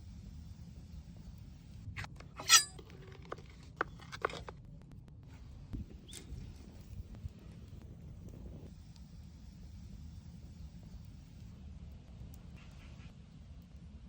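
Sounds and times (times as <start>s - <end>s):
ringing clink of hard gear: 2.4s - 2.8s.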